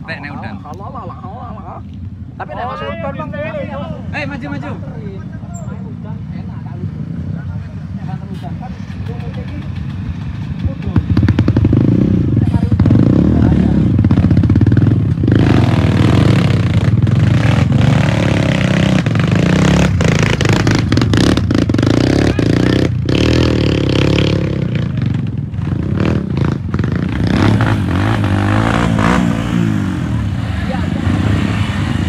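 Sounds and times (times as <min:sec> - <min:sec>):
motorcycle engine revving: 0:08.1 - 0:32.0.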